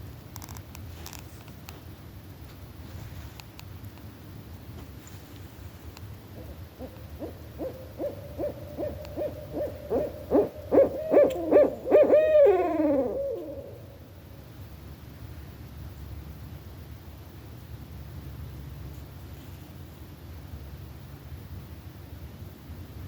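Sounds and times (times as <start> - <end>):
owl hooting: 6.2 - 14.3.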